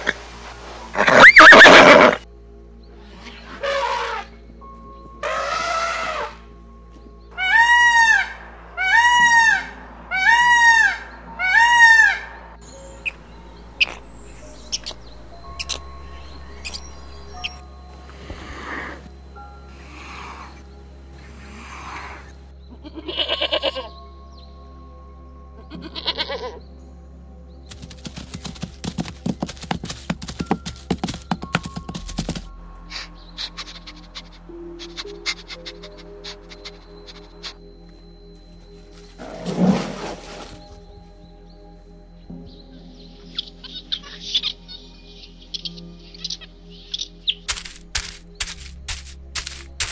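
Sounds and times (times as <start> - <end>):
peacock calling: 1.0 - 2.2, 5.2 - 6.4, 7.3 - 17.6, 21.4 - 24.0, 25.6 - 26.6, 27.7 - 37.9, 43.2 - 48.6
goat bleating: 22.8 - 23.9, 25.6 - 26.6
zebras galloping hoofbeats: 27.6 - 37.6.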